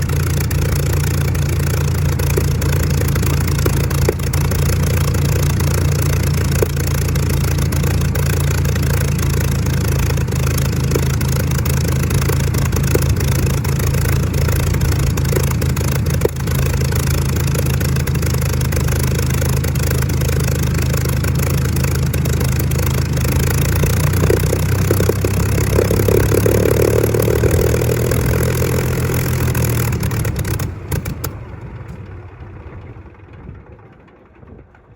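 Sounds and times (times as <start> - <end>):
aircraft piston engine running: 0.0 - 34.2.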